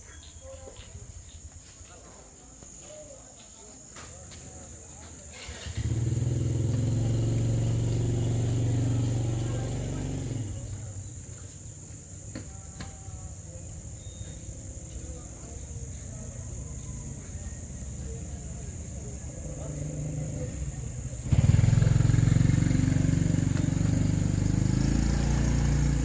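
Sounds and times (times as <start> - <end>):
crickets chirring: 0.0 - 26.0
engine hum: 5.2 - 26.0.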